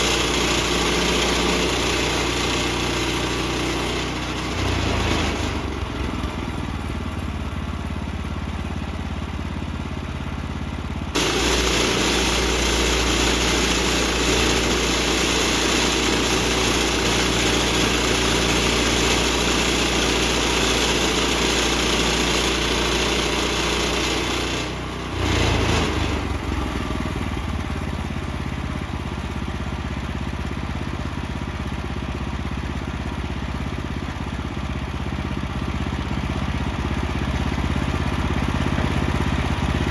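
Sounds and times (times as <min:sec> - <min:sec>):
band saw blade cutting log: 0:00.0 - 0:05.8, 0:11.2 - 0:26.4
gas engine droning: 0:11.2 - 0:20.0.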